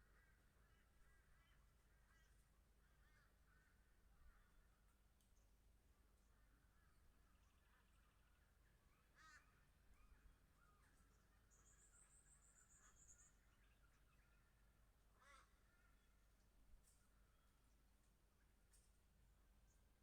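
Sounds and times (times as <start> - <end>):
soft bird chirps: 9.9 - 14.7.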